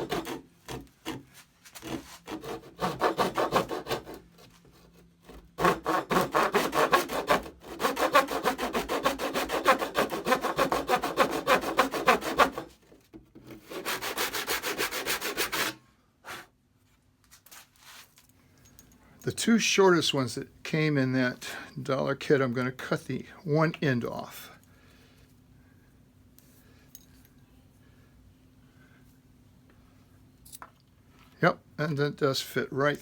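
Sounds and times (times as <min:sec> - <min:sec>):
hand tool rubbing wood: 0:00.0 - 0:05.0, 0:05.6 - 0:12.7, 0:13.7 - 0:16.4.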